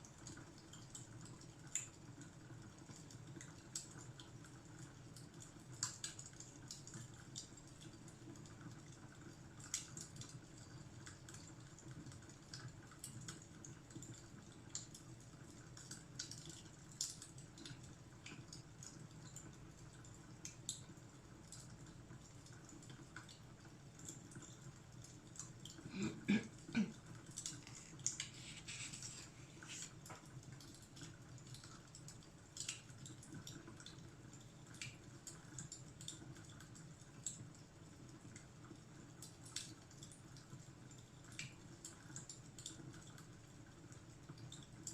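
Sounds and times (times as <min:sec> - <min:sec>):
fireplace crackling: 0:23.9 - 0:34.0.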